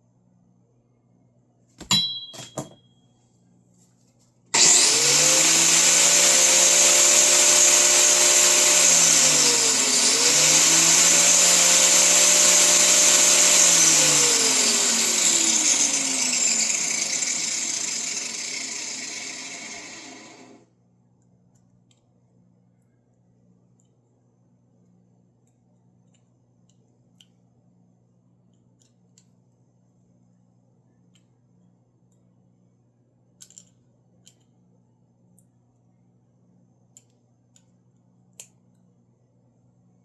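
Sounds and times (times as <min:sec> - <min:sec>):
electric power tool running: 0:04.6 - 0:20.6.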